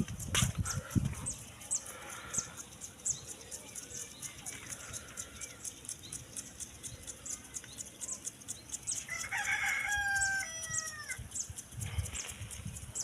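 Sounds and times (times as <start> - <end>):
small birds chirping: 0.0 - 13.0
rooster crowing: 9.1 - 11.2.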